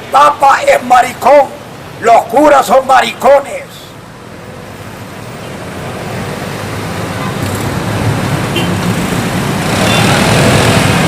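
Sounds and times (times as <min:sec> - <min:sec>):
road vehicle approaching: 0:03.4 - 0:11.0.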